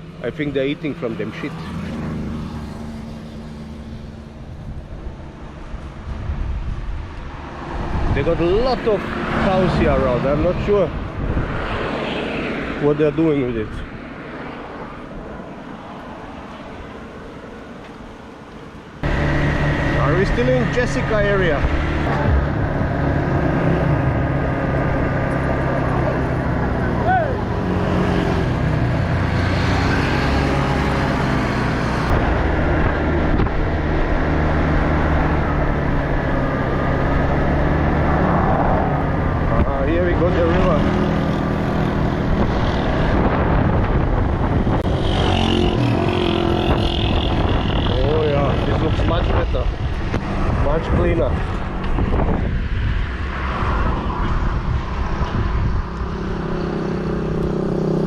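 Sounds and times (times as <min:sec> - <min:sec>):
wind rushing over microphone: 0:01.9 - 0:17.1, 0:19.0 - 0:58.0.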